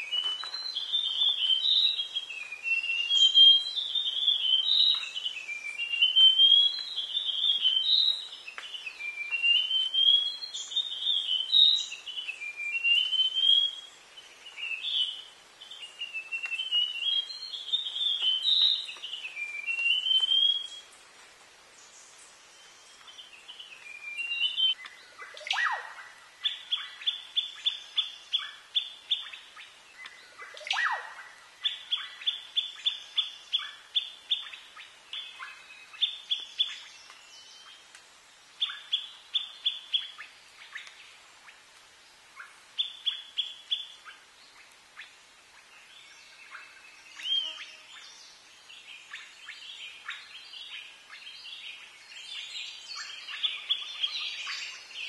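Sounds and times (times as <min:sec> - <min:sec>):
loud downward-sweeping bird calls: 0:25.3 - 0:26.2, 0:30.5 - 0:31.4.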